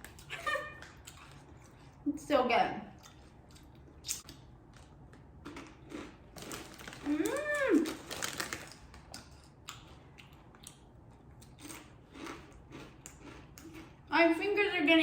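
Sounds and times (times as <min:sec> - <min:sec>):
crunching tortilla chips: 0:03.6 - 0:10.8, 0:11.4 - 0:14.0.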